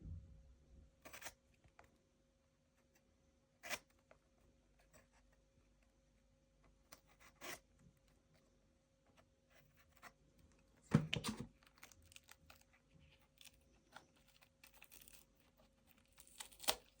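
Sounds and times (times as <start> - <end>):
handling clicks and scratches: 9.2 - 17.0
tearing crunching sound: 11.6 - 17.0.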